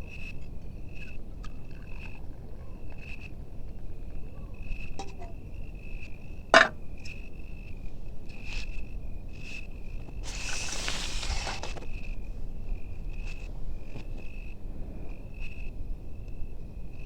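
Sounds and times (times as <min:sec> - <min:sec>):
crickets chirping: 0:00.0 - 0:17.0
hiss-like rustle: 0:09.4 - 0:12.2.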